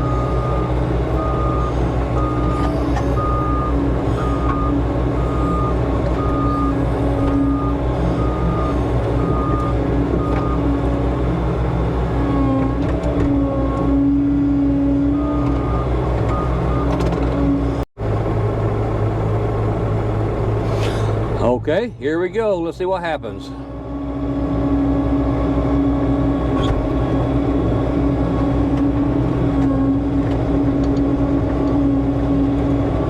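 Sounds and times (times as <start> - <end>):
backup alarm beeping: 0.0 - 10.7
diesel engine running: 0.0 - 33.0.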